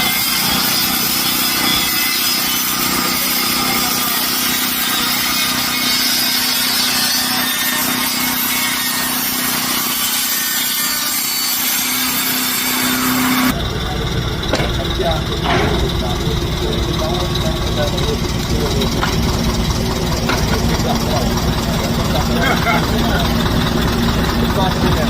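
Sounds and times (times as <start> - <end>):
power tool cutting: 0.0 - 25.0
low hum: 13.0 - 25.0.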